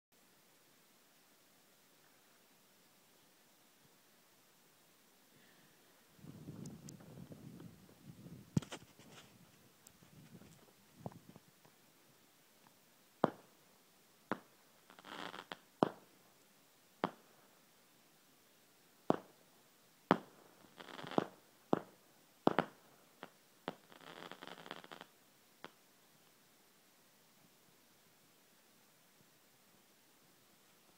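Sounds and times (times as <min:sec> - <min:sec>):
fireworks crackling: 0:06.3 - 0:11.5, 0:13.2 - 0:13.6, 0:14.3 - 0:16.3, 0:17.0 - 0:17.6, 0:19.1 - 0:25.8
fireworks bangs: 0:13.2 - 0:13.5, 0:14.3 - 0:16.1, 0:19.1 - 0:19.4, 0:20.1 - 0:25.0.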